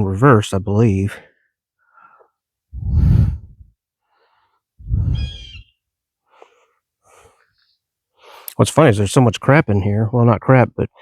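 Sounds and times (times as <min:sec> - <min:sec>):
heavy breaths: 0:01.3 - 0:05.4, 0:06.2 - 0:08.6.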